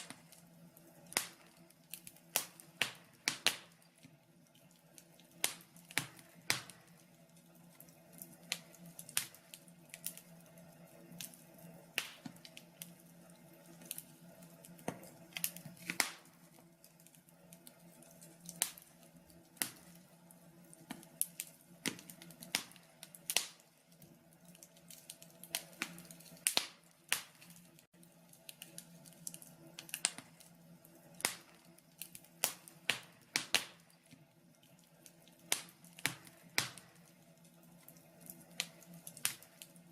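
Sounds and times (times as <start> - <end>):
logs crackling in a stove: 0.0 - 39.9.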